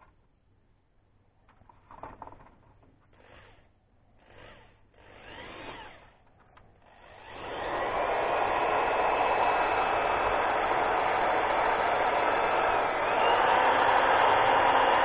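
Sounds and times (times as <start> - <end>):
tool drilling plastic: 3.2 - 6.2, 6.8 - 15.0.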